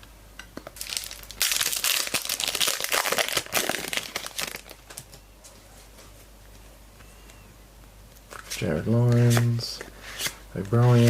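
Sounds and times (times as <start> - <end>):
wrapper ripping and crinkling: 0.8 - 5.1.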